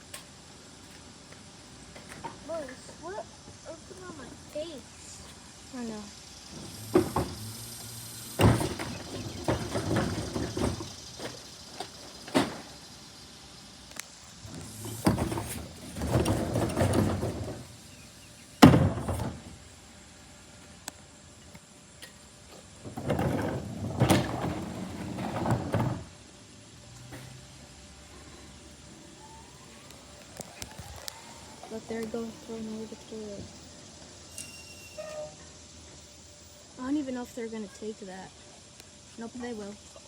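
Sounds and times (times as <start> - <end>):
garbage truck clattering and scraping: 6.4 - 13.0, 14.4 - 19.7, 22.6 - 26.2.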